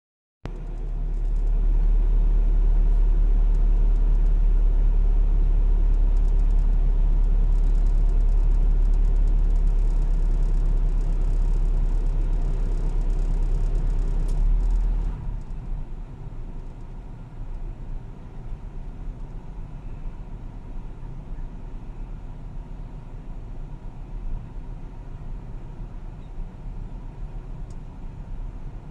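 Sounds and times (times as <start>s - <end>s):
car engine idling: 0.5s - 28.9s.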